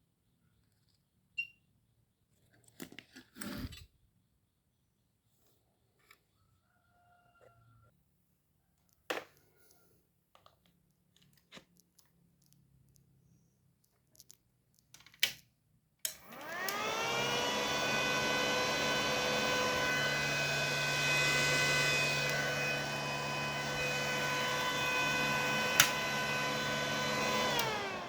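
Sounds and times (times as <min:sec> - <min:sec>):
cooling fan whine: 0:16.2 - 0:28.0
switch clicks: 0:25.8 - 0:26.0.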